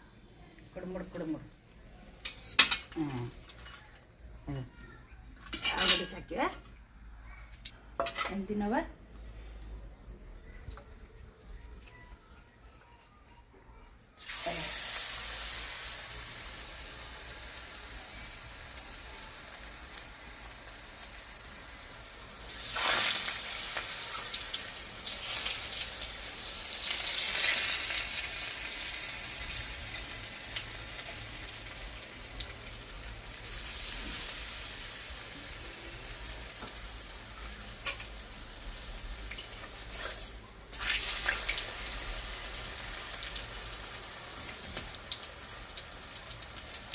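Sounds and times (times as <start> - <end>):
batter deep-frying in hot oil: 14.2 - 46.9.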